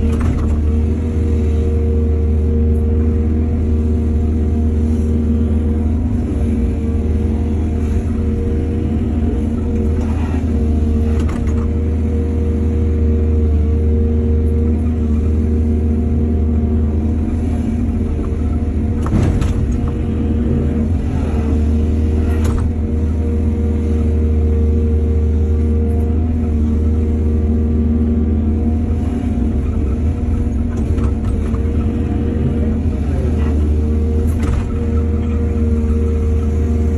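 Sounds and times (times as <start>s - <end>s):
excavator diesel engine humming: 0.0s - 36.9s.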